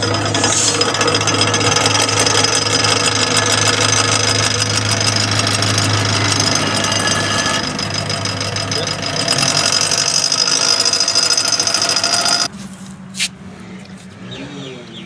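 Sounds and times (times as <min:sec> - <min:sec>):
electric motor hum: 0:00.0 - 0:12.5
brake shoe scraping in drum: 0:11.0 - 0:14.2.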